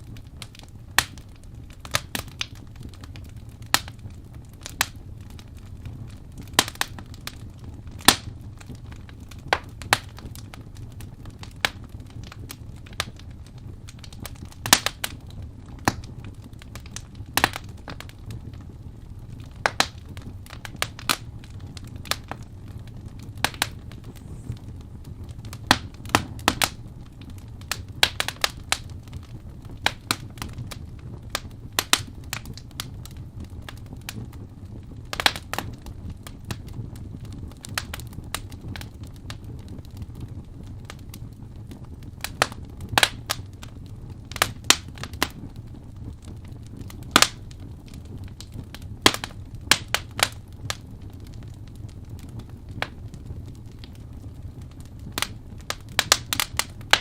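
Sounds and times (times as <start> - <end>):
wood fire crackling: 0.0 - 57.0
low rumble: 23.7 - 26.6.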